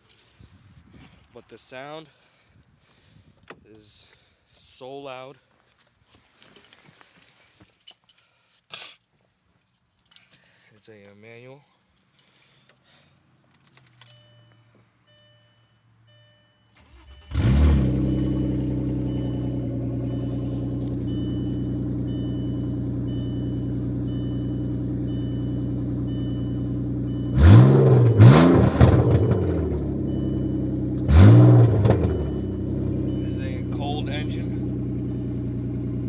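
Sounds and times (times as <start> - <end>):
car engine cranking and starting: 16.1 - 36.0
car engine revving: 16.8 - 36.0.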